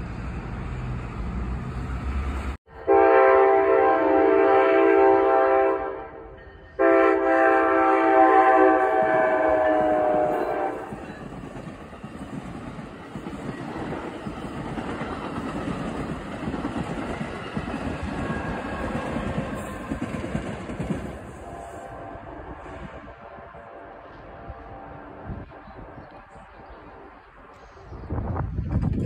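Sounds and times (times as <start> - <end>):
train coaches rumbling: 0.0 - 29.0
train horn blast: 2.7 - 11.2, 21.2 - 26.3.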